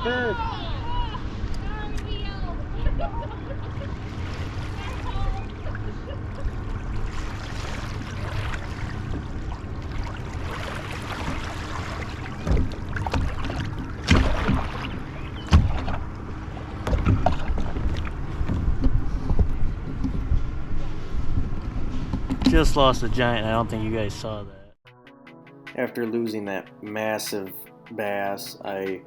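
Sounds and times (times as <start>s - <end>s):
water around a kayak: 0.0s - 23.3s
knocks against the boat: 12.4s - 14.7s, 15.4s - 16.0s.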